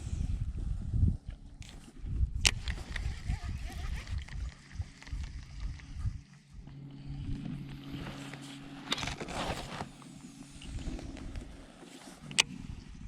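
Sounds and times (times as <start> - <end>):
wind rumble on microphone: 0.0 - 13.0
distant motorboat engine: 2.8 - 13.0.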